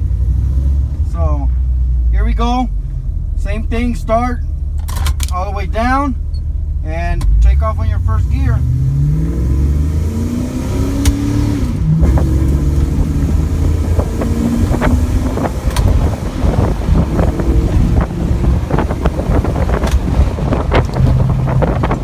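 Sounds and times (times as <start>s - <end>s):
car engine accelerating: 0.0s - 22.0s
road noise: 0.0s - 22.0s
wind buffeting microphone: 9.3s - 22.0s.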